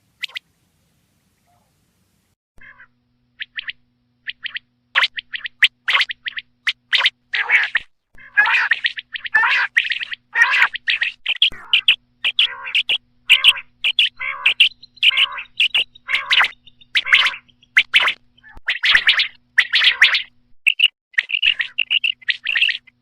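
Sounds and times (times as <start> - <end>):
quail calling: 2.6 - 23.0.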